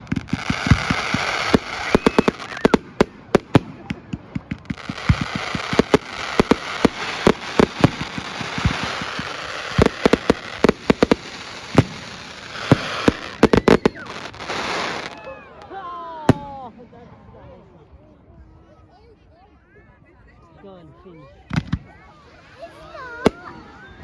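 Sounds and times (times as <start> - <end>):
fireworks crackling hiss: 0.0 - 15.3, 21.6 - 24.0
fireworks bangs: 0.0 - 17.2, 21.5 - 24.0.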